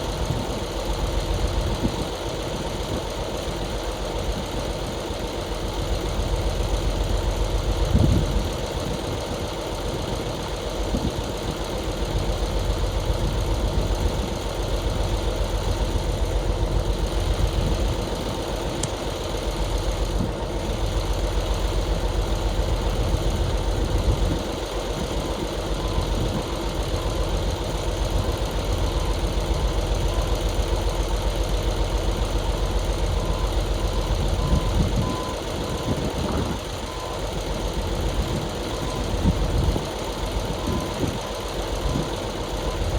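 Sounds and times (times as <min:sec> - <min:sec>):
diesel truck engine running: 0:00.0 - 0:42.9
reversing alarm beeping: 0:22.6 - 0:30.9, 0:32.1 - 0:42.9.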